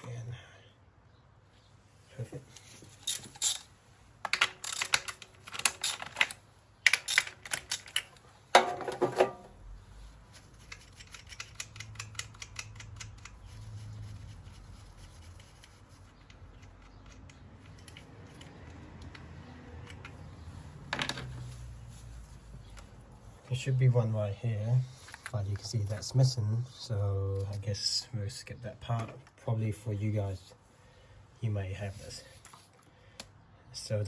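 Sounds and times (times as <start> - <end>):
metal tools clinking: 2.6 - 3.7, 4.3 - 9.5.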